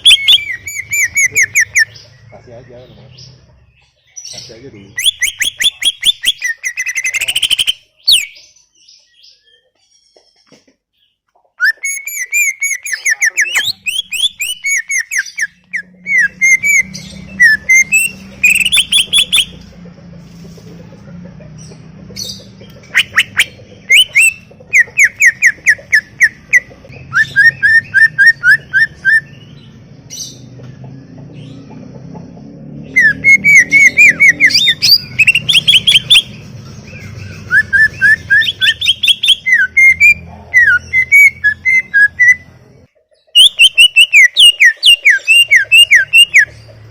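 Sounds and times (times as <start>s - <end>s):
bird singing whistled notes: 0.0s - 3.1s, 4.3s - 8.4s, 11.6s - 19.6s, 22.9s - 29.6s, 32.9s - 36.4s, 37.0s - 42.5s, 43.3s - 46.5s.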